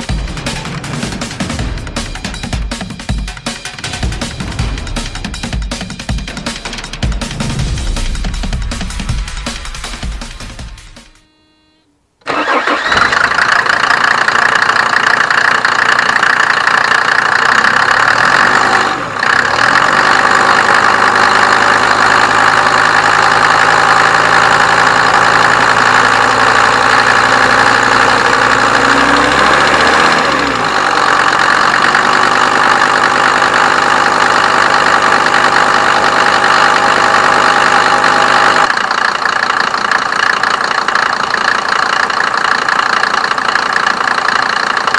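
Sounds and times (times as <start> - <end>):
diesel engine idling: 12.2 - 44.9.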